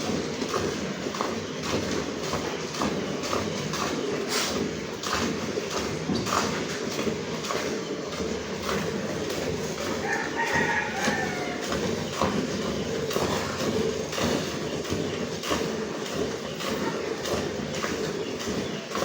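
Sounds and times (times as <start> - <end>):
rooster crowing: 10.0 - 11.8.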